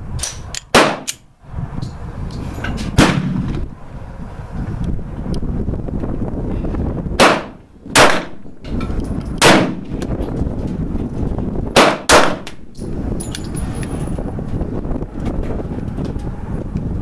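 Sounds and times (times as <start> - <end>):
pistol shots: 0.7 - 1.2, 7.2 - 8.4, 9.4 - 10.0, 11.8 - 12.6.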